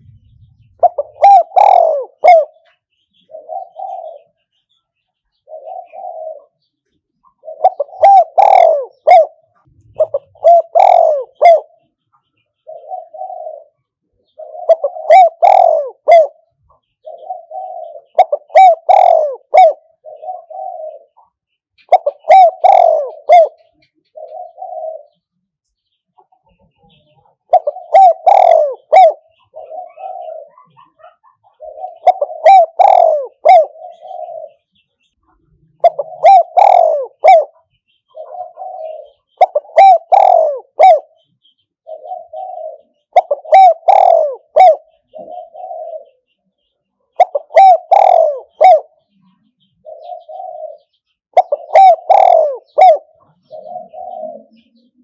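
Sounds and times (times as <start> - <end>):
dove cooing: 0.0 - 12.0, 12.6 - 25.3, 26.2 - 55.0.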